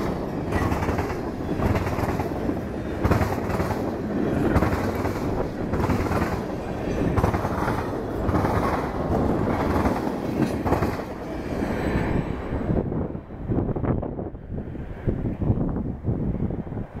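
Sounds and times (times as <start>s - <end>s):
wheels clicking over rail joints: 0.0s - 11.4s
steel wheels rumbling on rails: 0.0s - 17.0s.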